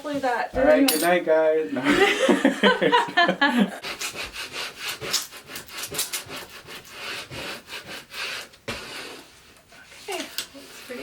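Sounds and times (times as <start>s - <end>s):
scraping against a hard surface: 4.0s - 11.0s.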